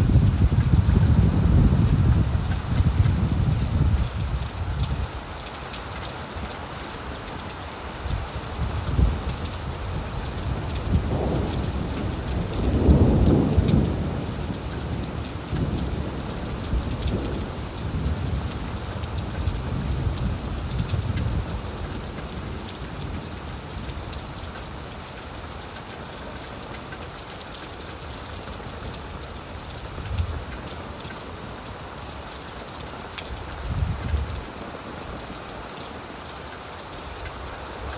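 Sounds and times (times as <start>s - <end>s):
thunder rumbling: 0.0s - 5.0s, 8.8s - 21.6s
rain on a tin roof: 0.0s - 37.9s.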